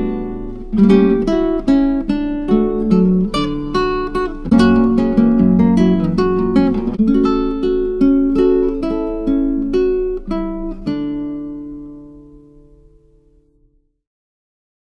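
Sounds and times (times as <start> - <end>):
acoustic guitar plucked notes: 0.0 - 13.4.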